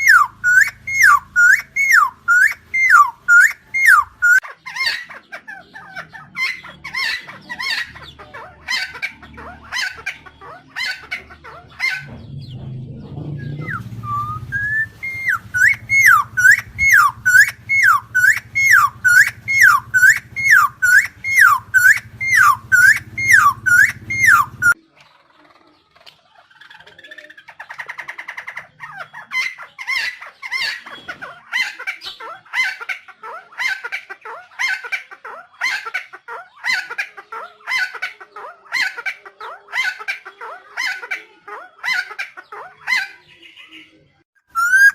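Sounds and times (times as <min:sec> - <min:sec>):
bird calling loud notes: 0:00.0 - 0:12.7, 0:13.3 - 0:24.8, 0:44.4 - 0:44.9.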